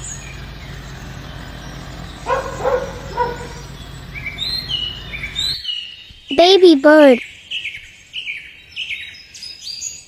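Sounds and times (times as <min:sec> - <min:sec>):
low outdoor background hum: 0:00.0 - 0:08.8
high bird chirps: 0:00.0 - 0:10.0
dog barking: 0:02.2 - 0:03.7.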